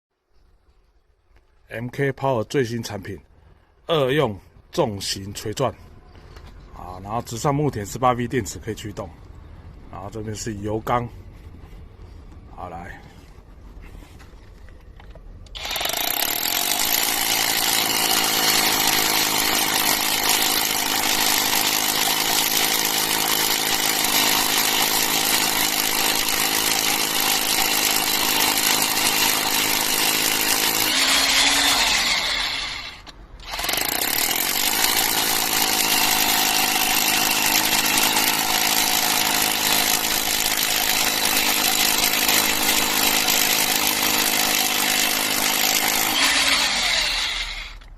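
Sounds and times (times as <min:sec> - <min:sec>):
rotary hammer drilling into concrete: 0:15.6 - 0:47.9.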